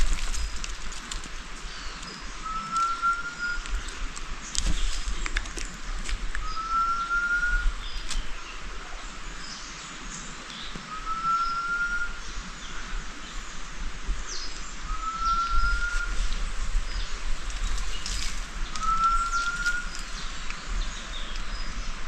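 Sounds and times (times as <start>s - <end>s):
bird long whistle: 2.4s - 3.7s, 6.4s - 7.8s, 10.9s - 12.4s, 14.9s - 16.3s, 18.7s - 20.1s.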